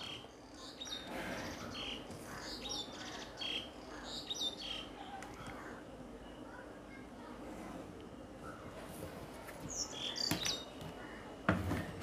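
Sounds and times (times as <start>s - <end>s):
small birds chirping: 0.0s - 6.6s, 9.6s - 11.3s.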